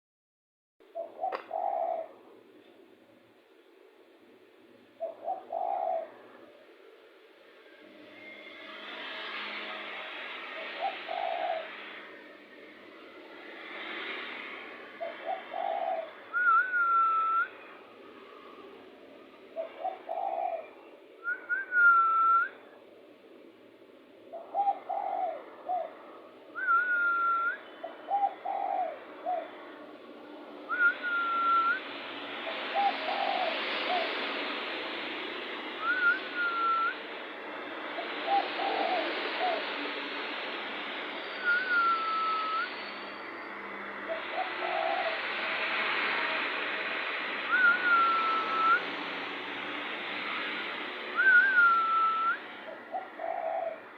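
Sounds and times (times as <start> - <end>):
dove cooing: 0.9 - 2.8, 4.9 - 6.6, 10.4 - 12.2, 14.3 - 17.5, 19.3 - 22.2, 24.3 - 29.9, 32.4 - 34.6, 37.9 - 40.4, 44.0 - 46.5, 47.5 - 48.9, 51.2 - 53.9
steady hiss: 30.1 - 53.0
higher whistled note: 30.7 - 31.9, 35.8 - 37.0, 41.2 - 43.5, 47.5 - 48.9, 51.1 - 52.5.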